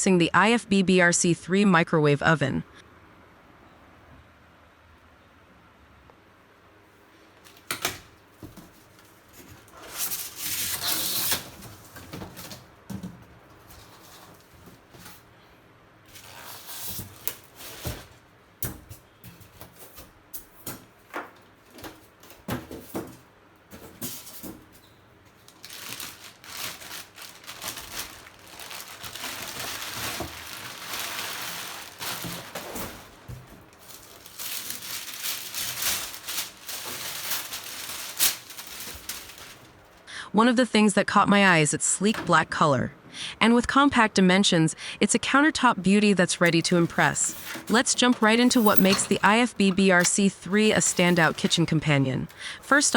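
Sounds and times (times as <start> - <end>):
cardboard and plastic rustling: 7.2 - 40.1, 46.4 - 52.9.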